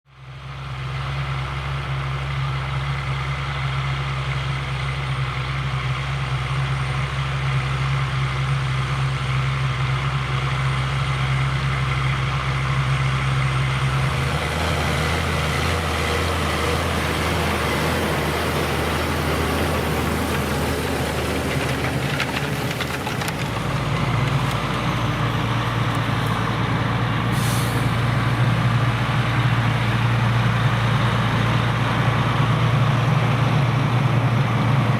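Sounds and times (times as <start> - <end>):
tractor diesel engine running: 0.1 - 34.9
brief hiss: 27.3 - 28.2.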